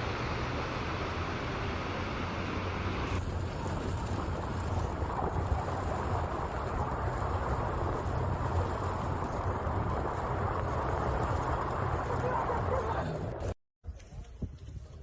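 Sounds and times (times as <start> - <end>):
floodwater rushing: 0.0 - 13.6
wind buffeting microphone: 3.1 - 15.0.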